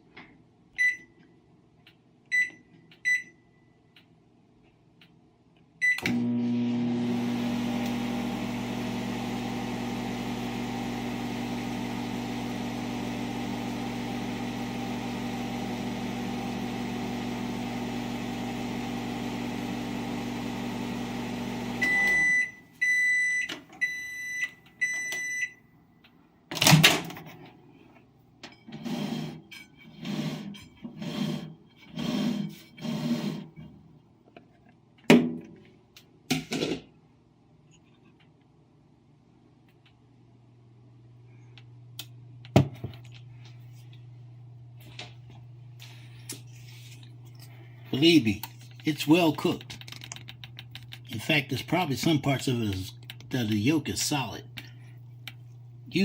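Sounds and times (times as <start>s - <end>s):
microwave end-of-cycle beeps: 0.8s - 1.2s, 2.3s - 3.5s, 5.8s - 25.7s
microwave keypad beeps: 0.8s - 1.2s, 2.3s - 3.5s, 5.8s - 6.1s, 21.8s - 25.6s
microwave oven humming: 5.9s - 25.2s.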